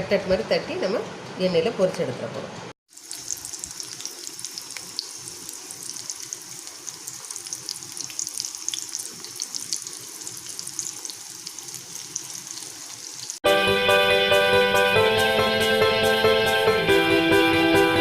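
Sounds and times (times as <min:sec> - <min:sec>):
food deep-frying in oil: 0:02.9 - 0:13.4
music: 0:13.4 - 0:18.0.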